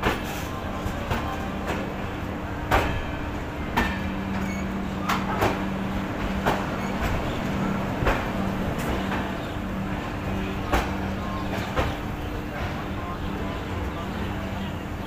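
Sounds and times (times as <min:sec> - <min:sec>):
train running noise with low hum: 0:00.0 - 0:15.0
train wheels knocking over rail joints: 0:02.6 - 0:09.4.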